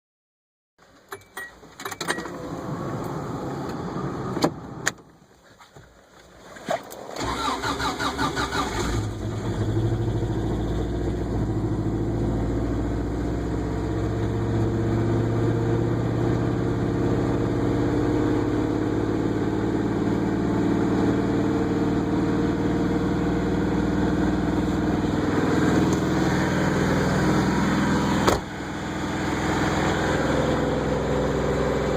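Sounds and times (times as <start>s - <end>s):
car engine idling: 23.6s - 31.9s.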